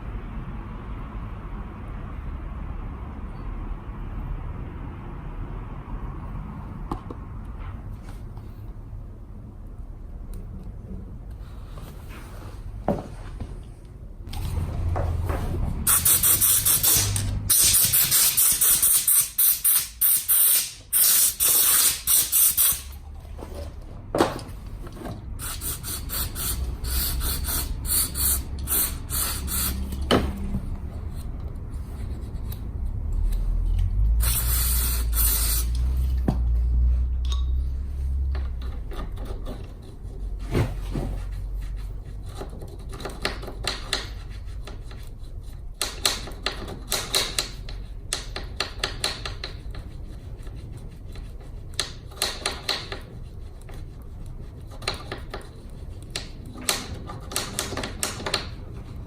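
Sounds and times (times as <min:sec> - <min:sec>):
clicks knocks and scraping: 0:38.2 - 0:49.9.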